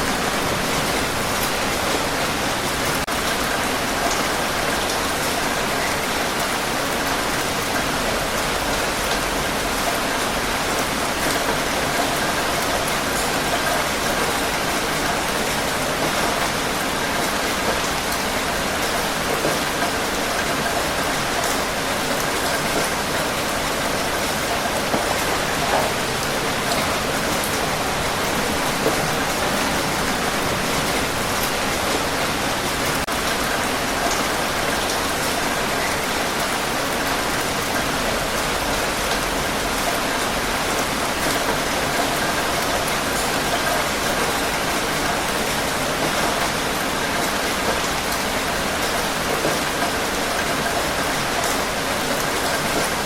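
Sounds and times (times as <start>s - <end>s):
rain falling on a surface: 0.0s - 53.0s.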